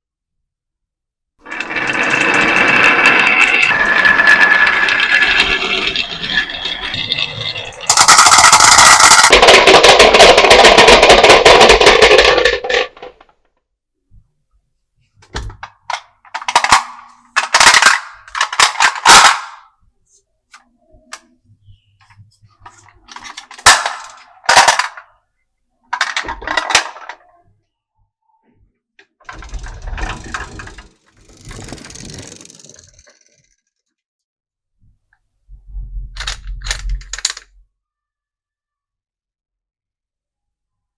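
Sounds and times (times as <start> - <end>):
marbles clattering down marble run: 1.4 - 13.3, 16.3 - 19.6, 23.1 - 25.0, 26.0 - 27.2, 29.3 - 33.6.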